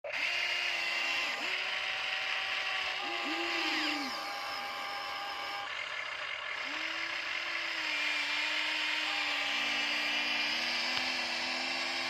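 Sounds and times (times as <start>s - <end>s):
electric gear motors whirring: 0.0s - 12.0s.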